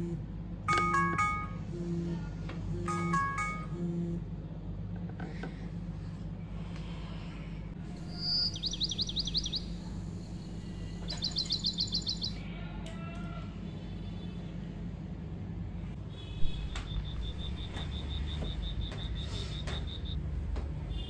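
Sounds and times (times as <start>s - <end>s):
steady low hum: 0.0s - 21.0s
bird chirping: 8.0s - 9.8s, 11.0s - 12.4s, 16.9s - 20.2s.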